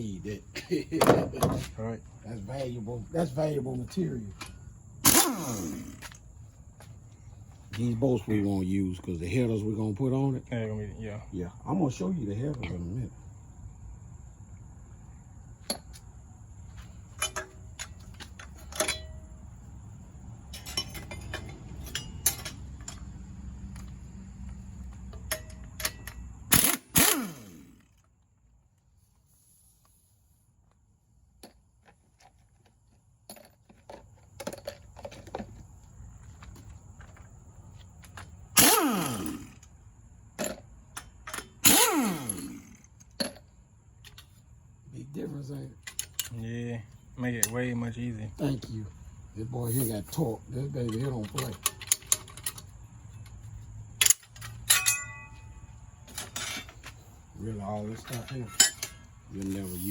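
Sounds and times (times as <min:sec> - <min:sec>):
tools clanking on metal: 0:00.6 - 0:01.8, 0:16.8 - 0:19.5, 0:20.4 - 0:23.9, 0:25.0 - 0:26.8, 0:40.4 - 0:44.4, 0:45.8 - 0:46.4, 0:49.7 - 0:59.9
impact wrench hammering: 0:05.1 - 0:06.1.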